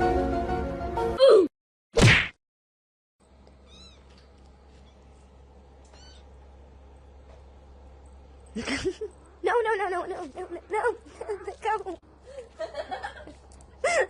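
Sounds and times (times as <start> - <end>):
low steady hum: 3.2 - 14.0
cat chirping meows: 3.7 - 4.2, 5.9 - 6.3.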